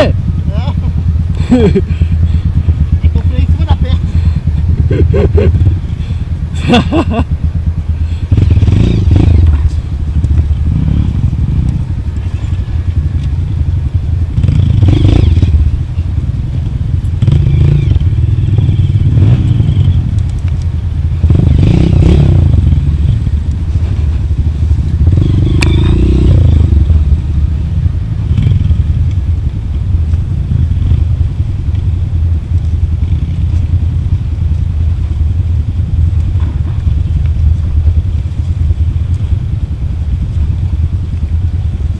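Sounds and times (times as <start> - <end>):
motorcycle engine at low revs: 0.0 - 41.9
bike clattering over rough ground: 36.2 - 38.0.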